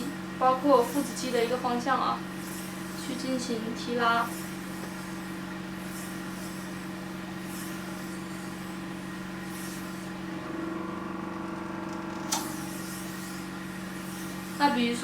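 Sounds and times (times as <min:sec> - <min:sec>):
vacuum pump humming: 0:00.0 - 0:15.0.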